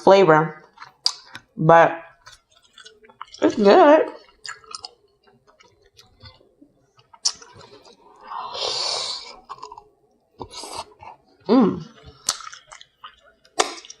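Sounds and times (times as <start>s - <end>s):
soft chewing: 0.6s - 14.0s
wet mouth clicks: 7.0s - 8.0s.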